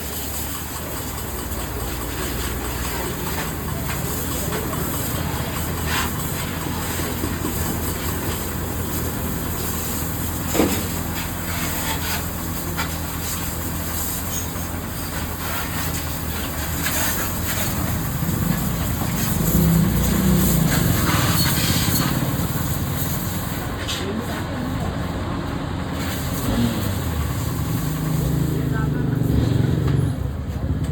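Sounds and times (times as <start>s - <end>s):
water spray hissing: 0.0s - 23.6s
pressure washer motor humming: 0.0s - 29.8s.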